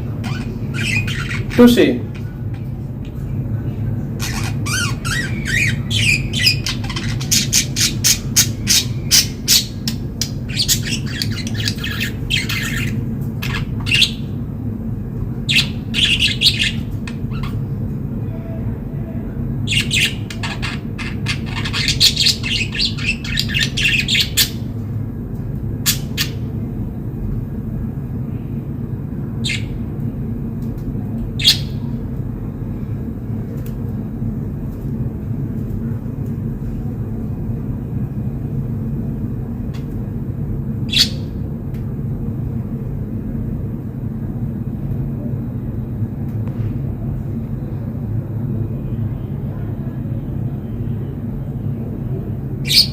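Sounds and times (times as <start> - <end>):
steady low hum: 0.0 - 52.9
budgerigars chirping: 0.2 - 1.8, 4.2 - 14.3, 15.5 - 17.6, 19.7 - 24.6, 29.4 - 29.8, 40.9 - 41.3, 52.6 - 52.9.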